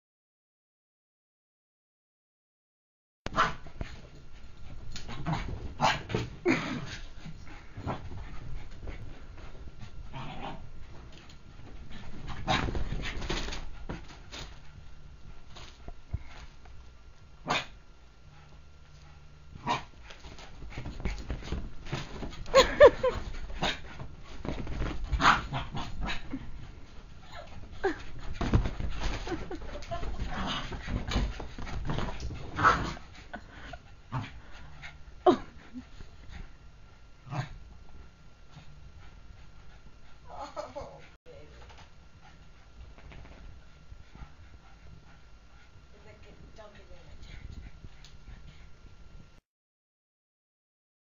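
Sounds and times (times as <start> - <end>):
scuffling and thumping: 20.2 - 33.1.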